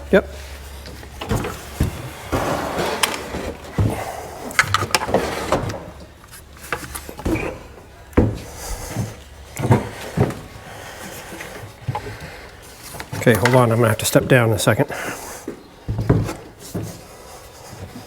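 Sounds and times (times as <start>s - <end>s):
metal part knocking and scraping: 2.3s - 3.9s.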